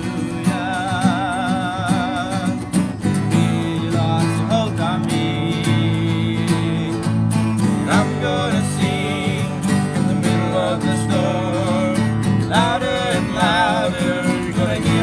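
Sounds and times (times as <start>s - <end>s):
acoustic guitar strumming chords: 0.0s - 15.0s
person singing: 7.8s - 15.0s.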